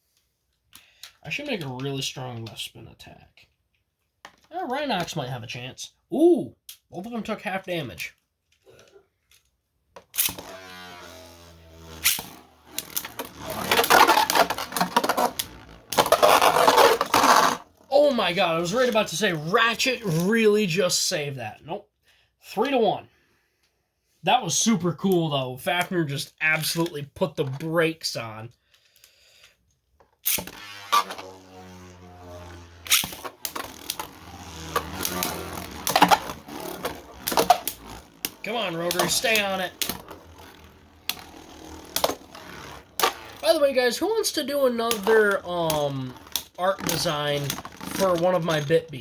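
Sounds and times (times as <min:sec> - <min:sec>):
plastic tops clattering and grinding: 0:10.0 - 0:19.4, 0:30.1 - 0:49.0
spinning tops whirring: 0:10.1 - 0:20.4, 0:30.2 - 0:49.0.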